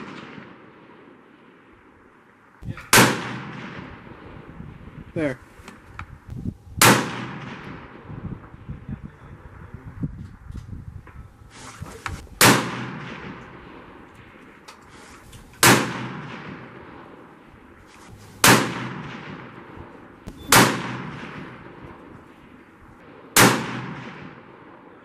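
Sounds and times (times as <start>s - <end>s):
rifle shots with echo: 0.0s - 5.0s, 6.8s - 8.7s, 12.2s - 25.0s.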